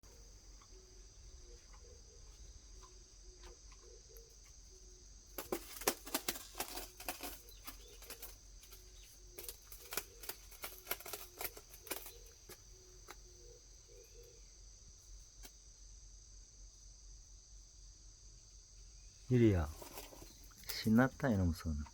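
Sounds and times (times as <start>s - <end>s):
insects chirring: 0.0s - 21.9s
kitten scratching styrofoam: 5.3s - 13.3s.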